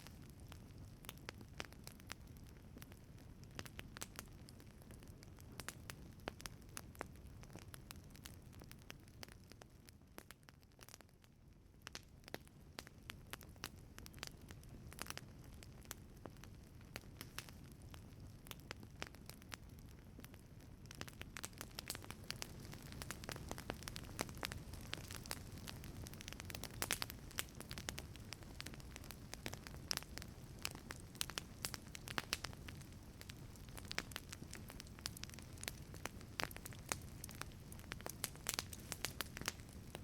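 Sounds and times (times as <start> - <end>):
low rumble of flame: 0.0 - 40.0
wood fire crackling and popping: 0.0 - 40.0.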